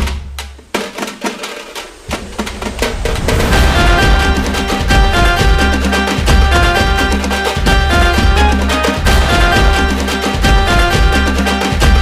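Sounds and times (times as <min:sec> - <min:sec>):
instrumental music with drums: 0:00.0 - 0:12.0
strong bass: 0:02.1 - 0:12.0.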